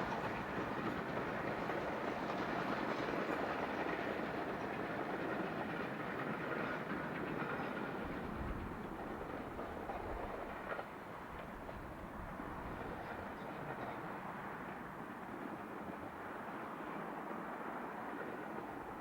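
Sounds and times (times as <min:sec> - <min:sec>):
train wheels clicking over rail joints: 0:00.0 - 0:19.0.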